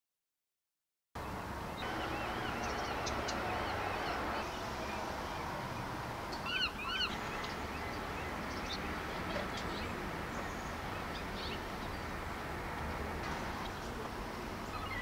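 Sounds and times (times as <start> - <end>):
birds calling: 1.2 - 15.0
outdoor background hiss: 1.2 - 15.0.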